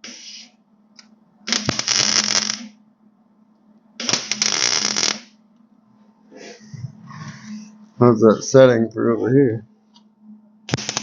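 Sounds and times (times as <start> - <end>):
steady low hum: 0.0 - 11.0
welder crackling: 1.5 - 2.7, 4.0 - 5.3, 10.7 - 11.0.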